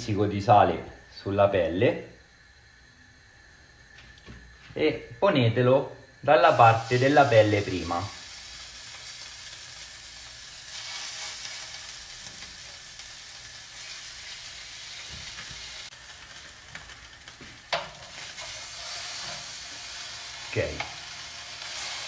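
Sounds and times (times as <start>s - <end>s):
fish sizzling in a pan: 6.1s - 22.0s.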